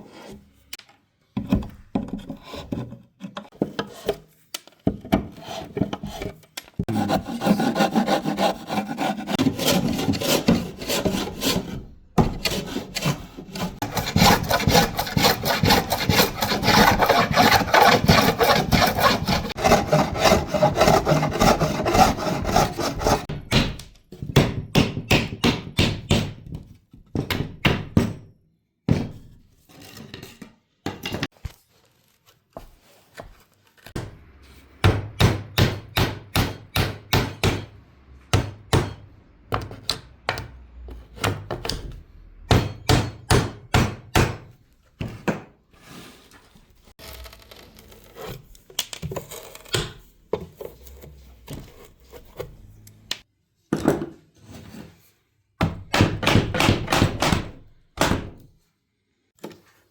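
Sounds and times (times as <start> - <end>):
scraping: 5.5 - 23.3
hammering on wood: 13.8 - 26.4, 34.8 - 40.5, 42.5 - 44.5, 55.6 - 58.4.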